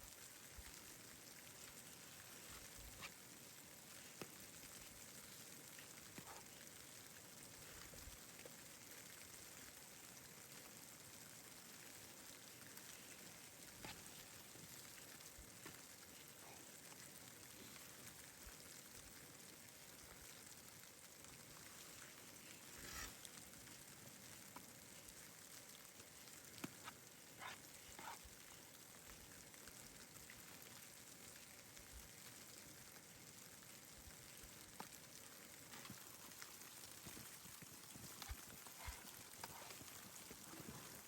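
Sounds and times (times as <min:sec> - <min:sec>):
faint steady hiss: 0:00.0 - 0:41.0.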